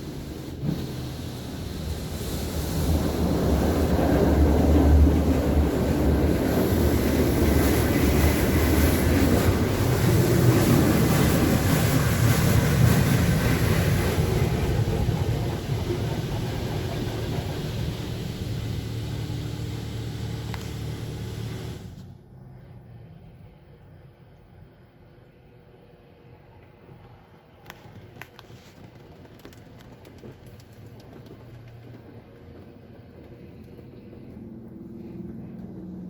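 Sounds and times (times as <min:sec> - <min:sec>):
water spraying against car: 0:00.0 - 0:22.0
mechanical rumble: 0:07.7 - 0:23.6, 0:24.5 - 0:36.0.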